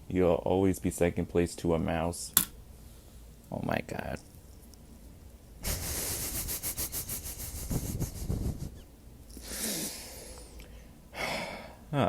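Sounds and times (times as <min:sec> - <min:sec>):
man wheezing laughter: 0:05.6 - 0:08.8
sighing exhale: 0:09.4 - 0:11.8.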